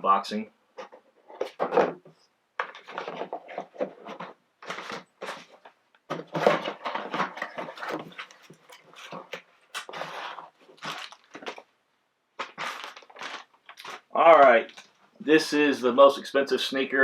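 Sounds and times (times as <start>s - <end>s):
rustles rubs and light knocks: 0.8s - 11.6s.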